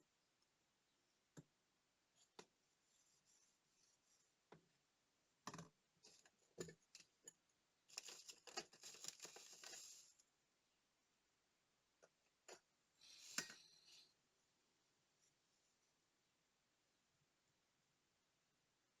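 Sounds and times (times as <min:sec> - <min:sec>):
scraping or rustling: 0:07.9 - 0:10.1.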